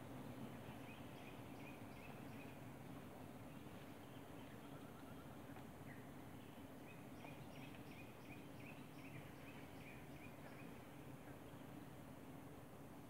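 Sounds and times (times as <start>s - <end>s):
forest background hum and hiss: 0.0s - 13.0s.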